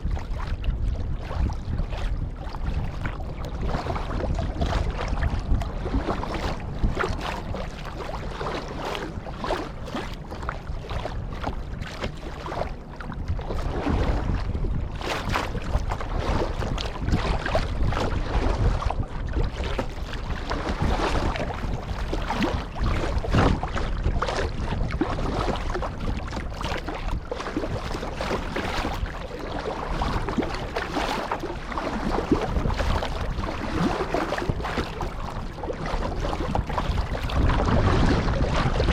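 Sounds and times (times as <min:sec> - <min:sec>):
kayak paddle splashing: 0:00.0 - 0:38.9
water washing along hull: 0:00.0 - 0:38.9
wind rumbling on microphone: 0:00.0 - 0:38.9.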